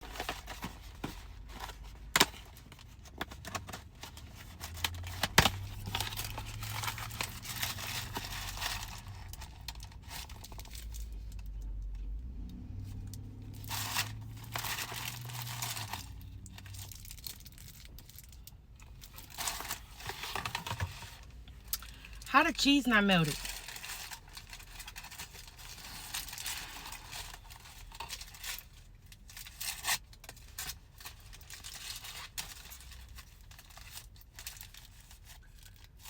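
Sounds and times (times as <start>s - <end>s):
food wrapping crinkling and tearing: 0.0s - 11.7s, 13.6s - 22.3s, 23.3s - 36.0s.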